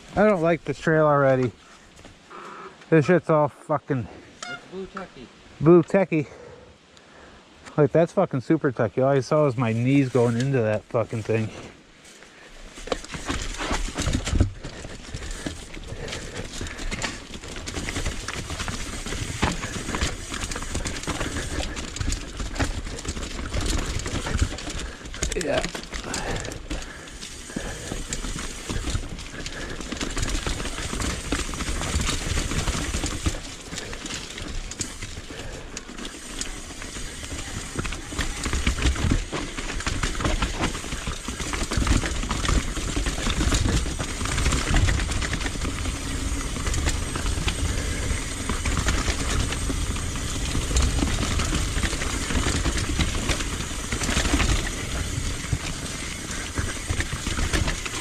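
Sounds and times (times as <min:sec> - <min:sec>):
bike tyres rumbling over rock: 0:12.3 - 0:58.0
bike frame rattling: 0:12.7 - 0:58.0.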